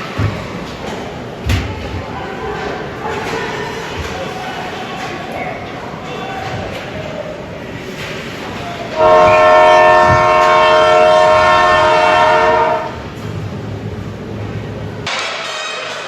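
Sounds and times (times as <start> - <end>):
arena horn blast: 9.0 - 13.1.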